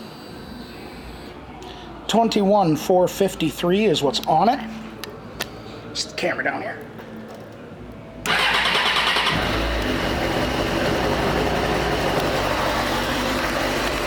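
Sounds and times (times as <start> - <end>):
electric starter cranking: 8.3 - 14.0
motorcycle engine idling: 8.3 - 14.0.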